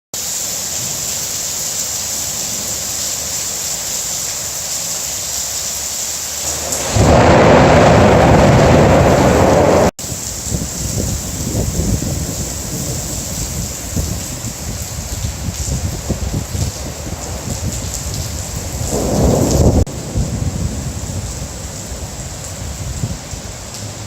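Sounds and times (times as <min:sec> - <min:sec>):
rain hissing: 0:00.2 - 0:24.0
thunder clap and rumble: 0:06.4 - 0:24.0.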